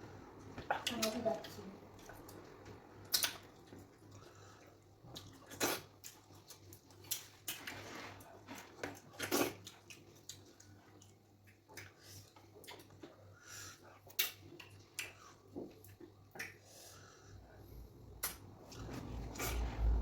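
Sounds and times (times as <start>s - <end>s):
wet eating squelches: 0.1s - 20.0s
chewing clicks: 2.0s - 3.8s
lip smacks: 3.0s - 3.6s, 15.9s - 16.6s, 18.2s - 18.5s.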